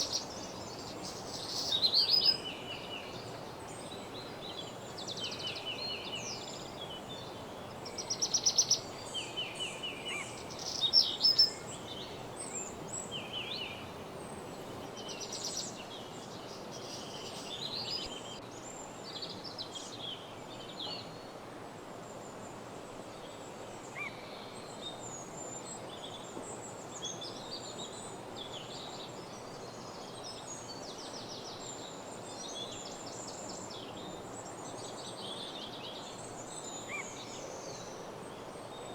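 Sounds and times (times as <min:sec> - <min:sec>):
songbirds singing and chirping: 0:00.0 - 0:18.4
steady low background hiss: 0:00.0 - 0:38.9.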